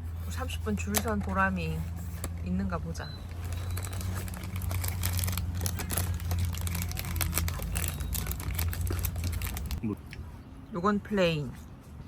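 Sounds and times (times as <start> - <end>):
packaging crinkling: 3.3 - 9.8.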